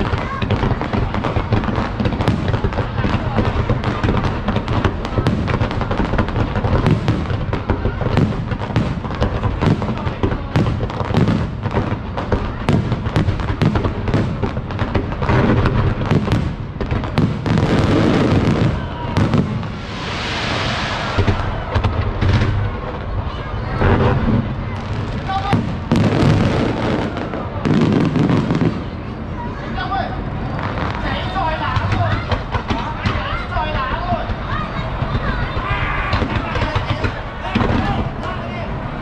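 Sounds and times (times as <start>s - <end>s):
fireworks bursts and booms: 0.0s - 29.6s, 30.2s - 39.0s
fireworks hissing: 1.9s - 23.1s.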